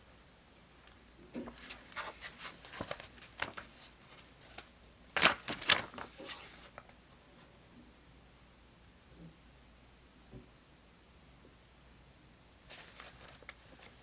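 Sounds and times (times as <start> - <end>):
paper rustling: 1.4 - 6.8, 12.7 - 14.0.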